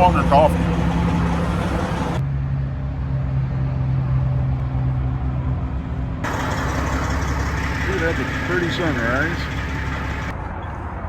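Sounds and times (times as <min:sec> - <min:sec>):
diesel truck engine idling: 0:00.0 - 0:02.2, 0:06.2 - 0:10.3.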